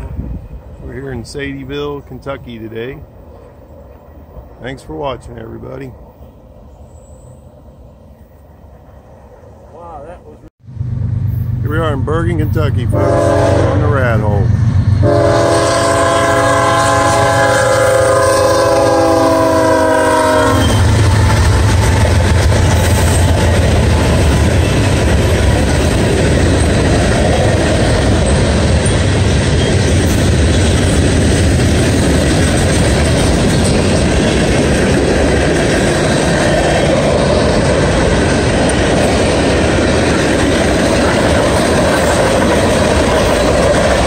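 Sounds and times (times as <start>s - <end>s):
freight cars rumbling and clacking: 0.0s - 6.3s, 11.3s - 13.0s, 20.6s - 44.0s
locomotive air horn chord: 12.9s - 14.0s, 15.0s - 20.9s.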